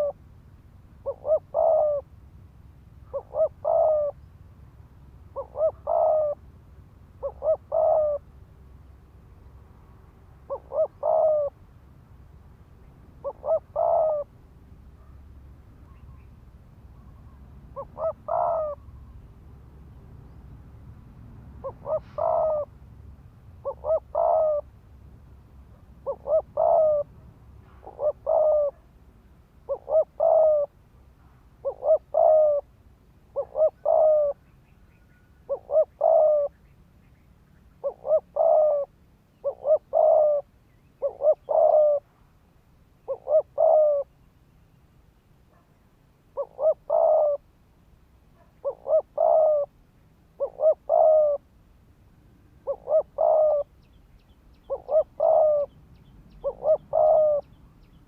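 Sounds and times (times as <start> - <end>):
dove cooing: 0.0 - 0.2, 1.0 - 2.2, 3.0 - 4.3, 5.3 - 6.4, 7.2 - 8.4, 10.4 - 11.6, 13.1 - 14.4, 17.0 - 19.2, 21.6 - 22.8, 23.6 - 24.7, 25.7 - 28.9, 29.6 - 30.8, 31.6 - 32.7, 33.3 - 36.7, 37.8 - 42.2, 43.0 - 44.2, 46.3 - 47.5, 48.4 - 49.8, 50.4 - 51.5, 52.5 - 58.0.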